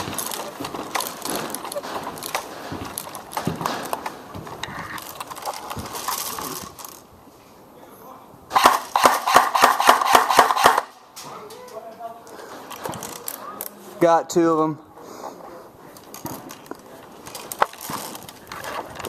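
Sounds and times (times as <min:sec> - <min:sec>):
clicks and rustling: 0:00.0 - 0:07.1, 0:10.0 - 0:13.8, 0:15.9 - 0:19.0
paintball marker firing shots: 0:08.5 - 0:11.0.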